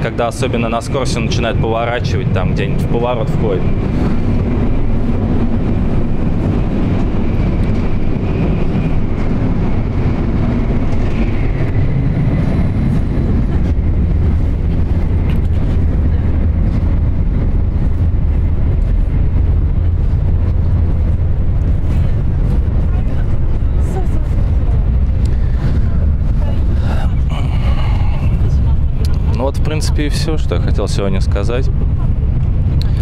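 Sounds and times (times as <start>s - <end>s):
train rumbling at speed: 0.0s - 33.0s.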